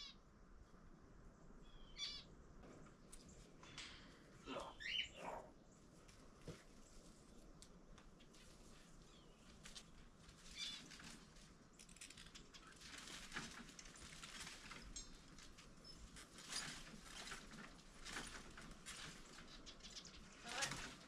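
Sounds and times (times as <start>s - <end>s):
bird chirps: 1.6s - 2.3s, 3.6s - 5.6s
scratchy rustles of birds: 5.8s - 21.0s.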